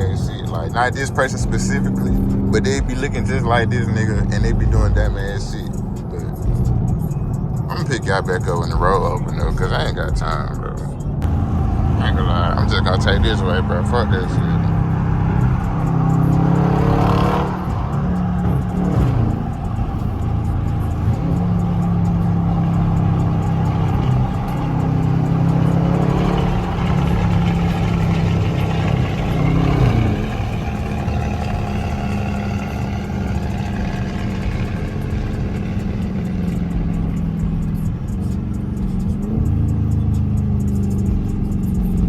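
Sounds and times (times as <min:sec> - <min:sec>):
car engine running while driving: 0:00.0 - 0:42.0.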